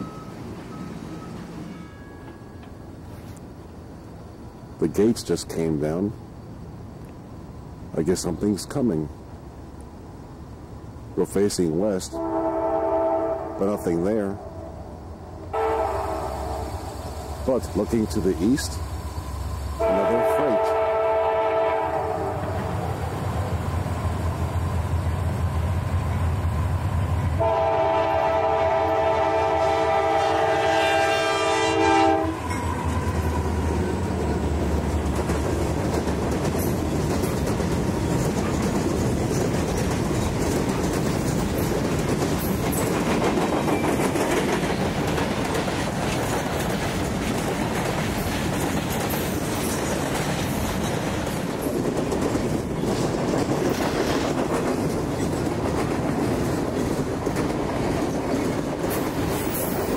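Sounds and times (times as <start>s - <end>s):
locomotive horn chord: 12.2s - 13.8s, 15.5s - 16.9s, 19.8s - 22.7s, 27.4s - 33.1s
wheels clattering on rails: 32.4s - 59.9s.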